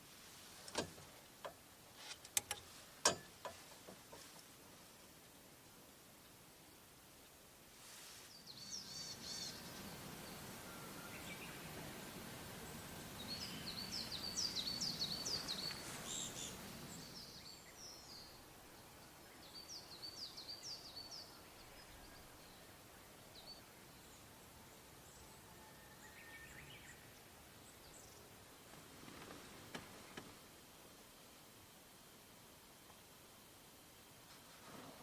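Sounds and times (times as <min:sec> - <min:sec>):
songbird chirping: 0:08.2 - 0:33.1.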